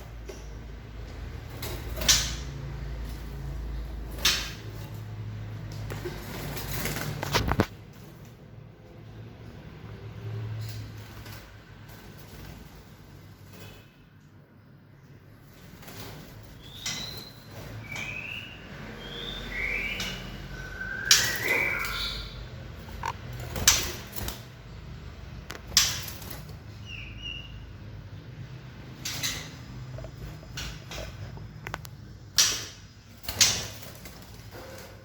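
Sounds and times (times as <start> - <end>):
birds chirping: 15.2 - 24.8, 25.6 - 34.2
sharp knocks and clicks: 22.8 - 24.4.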